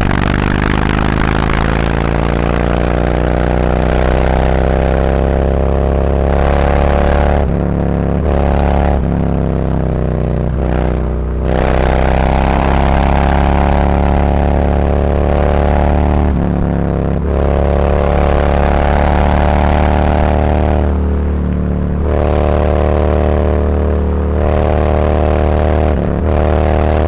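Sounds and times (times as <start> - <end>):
motorcycle exhaust accelerating: 0.0 - 27.0.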